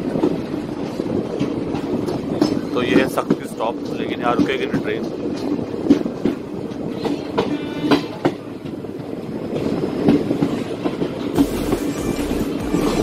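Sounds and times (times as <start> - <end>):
train drone: 0.0 - 13.0
train wheels clattering over rail joints: 0.0 - 13.0.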